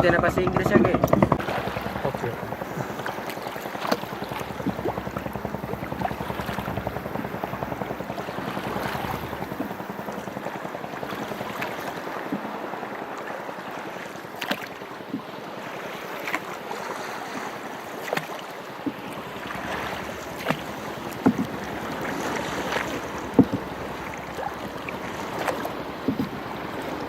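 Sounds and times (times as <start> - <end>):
knocks against hull: 0.0 - 7.0, 18.8 - 26.9
wind on microphone: 0.0 - 12.5, 18.8 - 27.0
water lapping around boat: 0.0 - 27.0.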